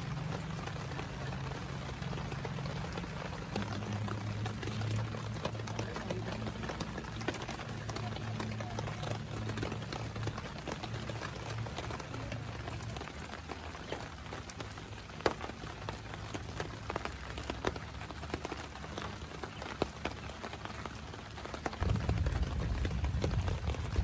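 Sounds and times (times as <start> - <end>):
heavy rain falling: 0.0 - 24.0
raindrops tapping on a surface: 0.0 - 24.0
low rumble: 21.8 - 24.0.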